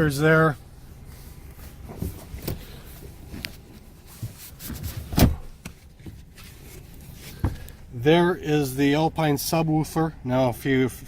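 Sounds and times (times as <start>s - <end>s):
knocks and clicks of handling: 1.9s - 7.8s.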